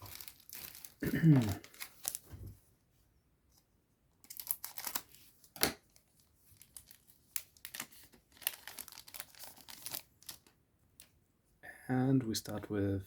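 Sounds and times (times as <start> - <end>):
wrapper crinkling: 0.0 - 2.3, 4.2 - 5.3, 6.0 - 10.6.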